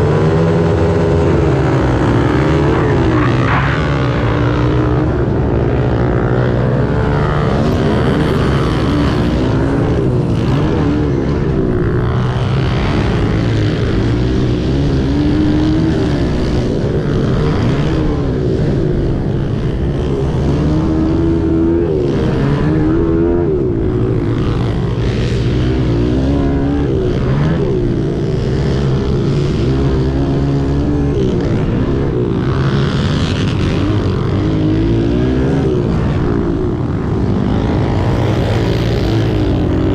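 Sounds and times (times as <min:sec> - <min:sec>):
small motorbike engines revving: 0:00.0 - 0:39.9.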